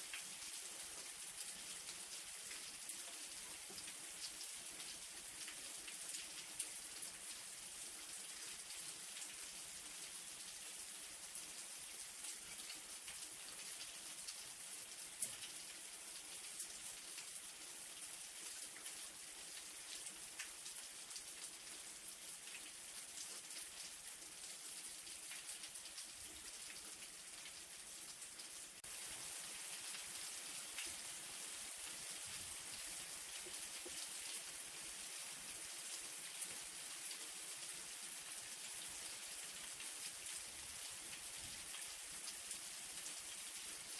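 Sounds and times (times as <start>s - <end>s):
light rain falling: 0.0s - 43.9s.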